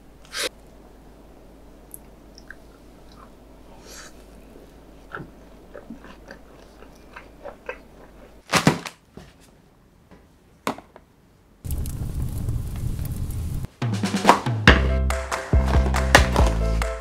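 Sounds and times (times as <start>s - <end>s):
wet mouth clicks: 1.9s - 4.4s, 5.1s - 8.4s
close chewing of food: 1.9s - 8.5s
drum-led music: 13.7s - 17.0s.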